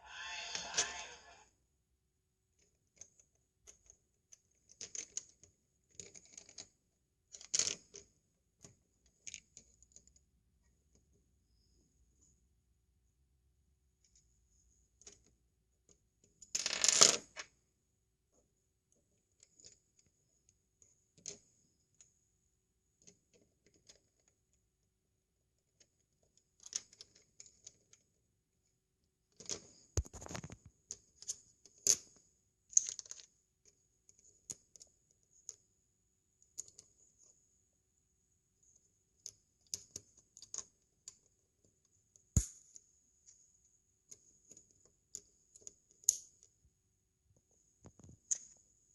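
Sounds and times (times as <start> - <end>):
plastic bricks clicking and clattering: 32.7 - 33.3.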